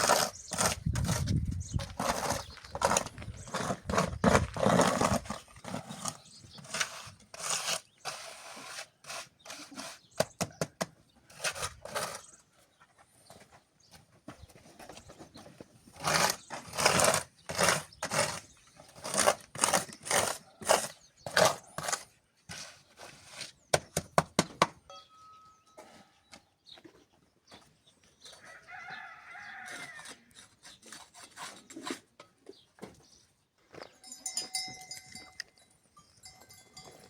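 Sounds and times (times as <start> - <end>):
tool scraping wet cement mix: 0.0 - 12.6, 15.4 - 24.7, 28.8 - 32.6.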